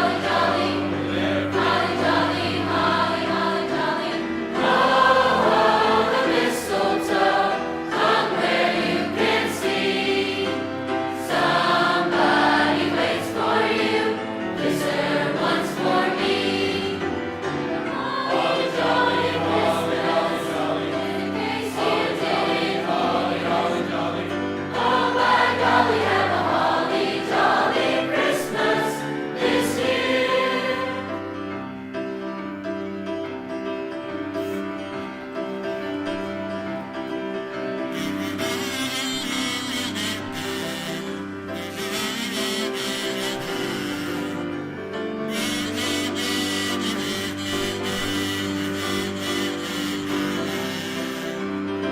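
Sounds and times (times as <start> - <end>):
choir singing: 0.0 - 31.7
low musical accompaniment: 0.0 - 51.9.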